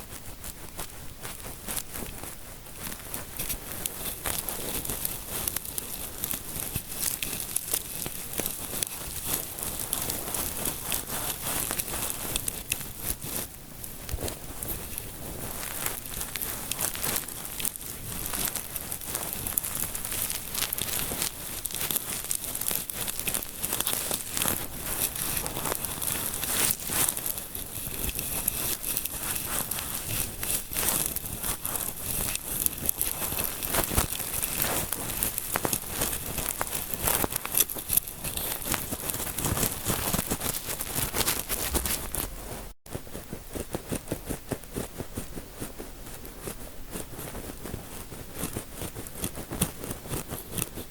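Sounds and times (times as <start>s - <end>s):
fingers rubbing microphone: 23.0s - 45.8s.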